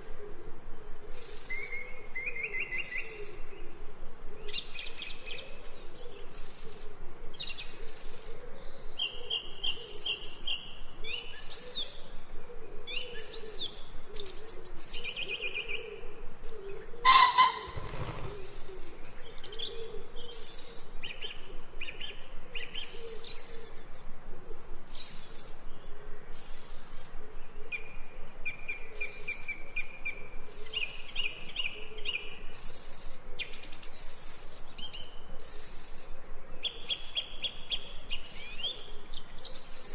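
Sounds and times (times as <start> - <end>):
small songbirds chirping: 24.8 - 39.9.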